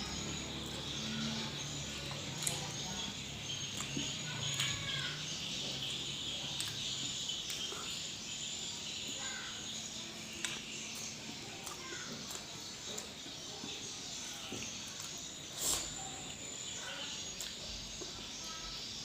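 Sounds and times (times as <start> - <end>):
quiet eating mouth sounds: 5.8 - 8.2, 10.2 - 16.4
steady high-pitched hiss: 6.9 - 19.0.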